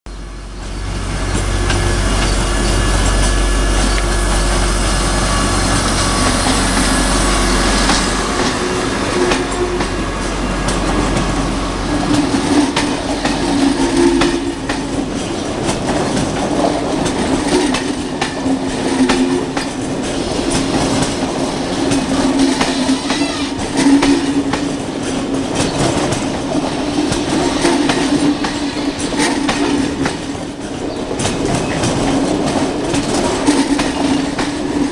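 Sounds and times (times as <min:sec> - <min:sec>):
locomotive engine hum: 0:00.1 - 0:34.9
train wheel squeal: 0:00.4 - 0:15.5, 0:21.9 - 0:24.5.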